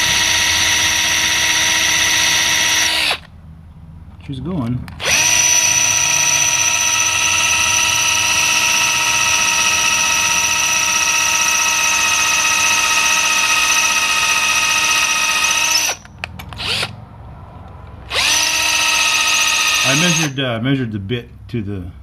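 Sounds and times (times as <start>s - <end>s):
electric drill whining: 0.0s - 3.3s, 5.0s - 17.0s, 18.1s - 20.4s.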